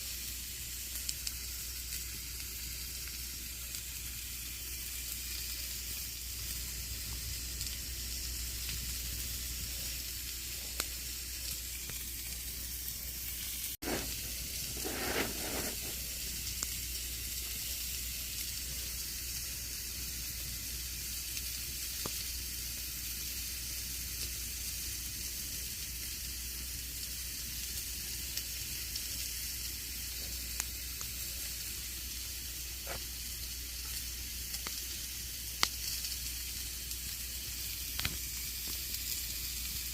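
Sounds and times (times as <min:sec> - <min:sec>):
campfire hissing: 0:00.0 - 0:39.9
wood crackling and popping: 0:00.9 - 0:07.9, 0:08.6 - 0:10.0, 0:10.8 - 0:17.7, 0:29.9 - 0:31.8, 0:32.5 - 0:39.9
rustling: 0:13.8 - 0:16.0.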